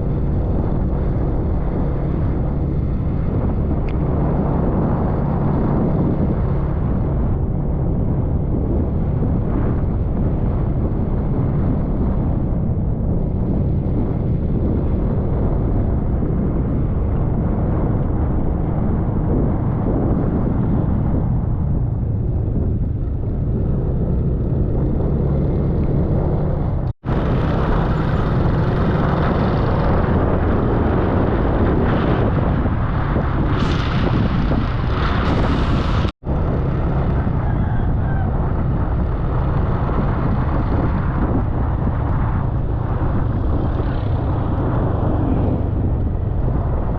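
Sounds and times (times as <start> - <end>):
wind rumble on microphone: 0.0 - 46.9
motor scooter engine running: 23.1 - 46.3.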